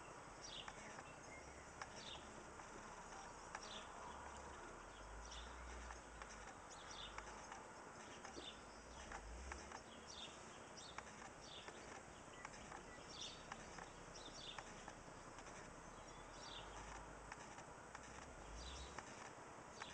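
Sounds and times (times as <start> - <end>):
small bird calling: 0.0 - 17.1
light clicks: 0.6 - 1.1, 5.3 - 15.7, 16.5 - 19.9.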